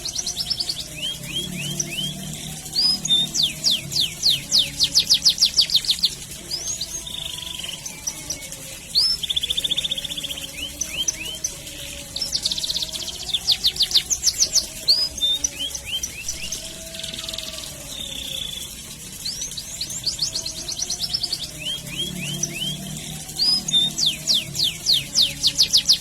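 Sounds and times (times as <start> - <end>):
canary singing: 0.0 - 26.0.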